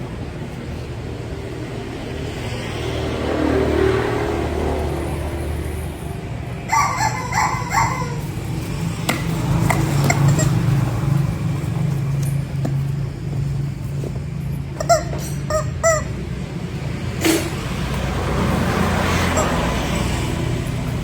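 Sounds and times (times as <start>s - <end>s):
short high bending calls: 6.6s - 8.6s, 14.7s - 16.5s.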